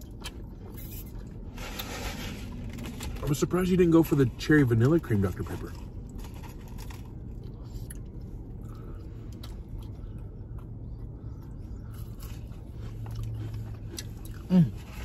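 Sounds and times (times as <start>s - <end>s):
people chewing fried food: 0.0s - 3.2s, 4.9s - 15.0s
low steady hum: 0.0s - 15.0s.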